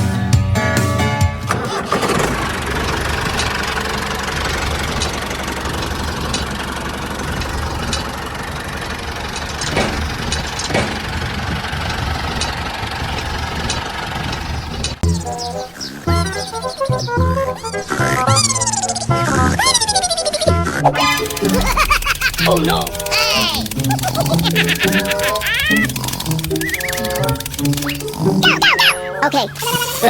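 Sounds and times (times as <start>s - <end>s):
music: 0.0s - 1.6s, 15.0s - 30.0s
engine idling with knocking rumble: 1.4s - 29.5s
scattered clicks: 2.1s - 16.8s, 20.8s - 30.0s.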